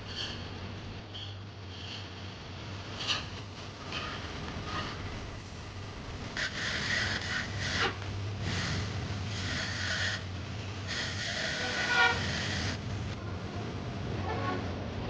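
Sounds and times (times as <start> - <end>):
low steady hum: 0.0 - 15.0
long scraping strokes: 6.4 - 10.3, 10.9 - 12.9.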